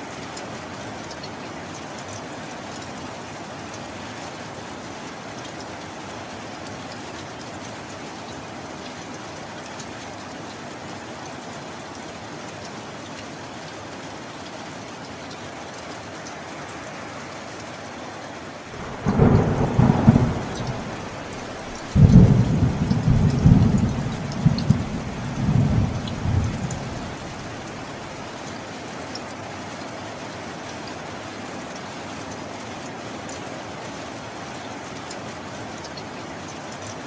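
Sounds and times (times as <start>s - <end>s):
steady rain: 0.0s - 37.0s
thunder rumbling: 18.8s - 28.1s.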